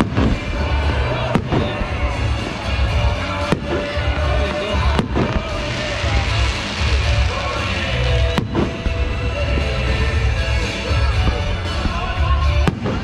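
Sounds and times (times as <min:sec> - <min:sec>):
music playing: 0:00.0 - 0:13.0
firework shells bursting: 0:03.4 - 0:09.9.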